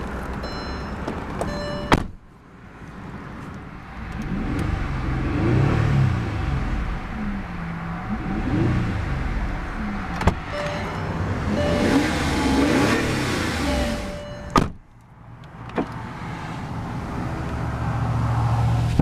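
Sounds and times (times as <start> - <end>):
car engine revving: 3.9 - 14.8.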